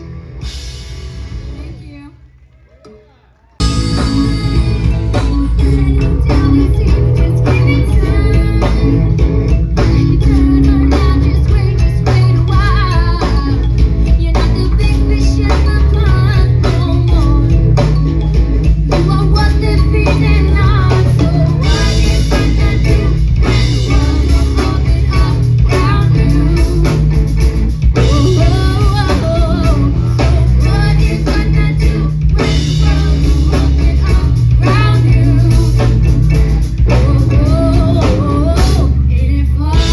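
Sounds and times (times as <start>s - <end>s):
drum kit: 0.0s - 2.2s, 2.8s - 39.9s
person singing: 3.6s - 17.8s, 18.9s - 39.9s
electric guitar: 3.6s - 39.9s.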